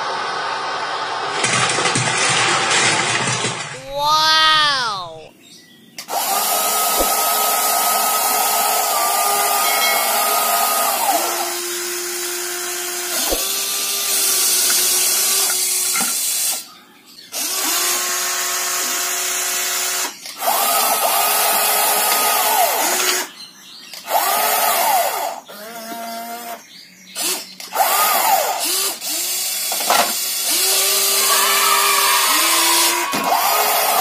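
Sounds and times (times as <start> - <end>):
toy vehicle motor whining: 6.0 - 16.7, 17.3 - 23.3, 24.0 - 26.6, 27.2 - 34.0.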